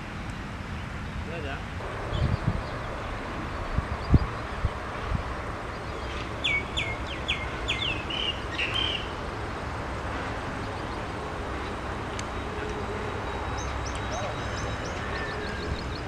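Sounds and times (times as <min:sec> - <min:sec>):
bird calling with trill: 0:05.9 - 0:09.2, 0:12.4 - 0:16.0.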